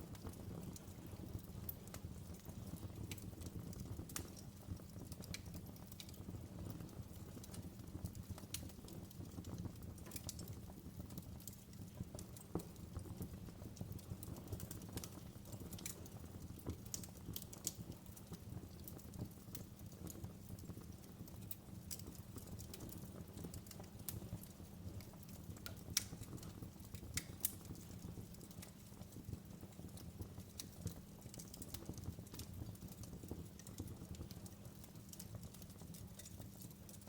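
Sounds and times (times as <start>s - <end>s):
low rumble of fire: 0.0s - 37.0s
wood fire crackling: 0.0s - 37.0s
sharp pops and snaps: 14.5s - 29.2s.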